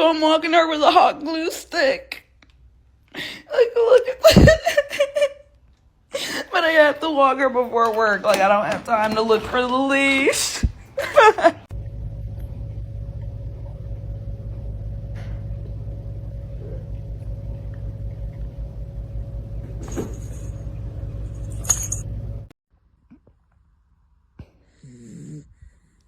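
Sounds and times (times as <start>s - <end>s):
faint hum: 11.7s - 22.5s
low rumble: 11.7s - 22.5s.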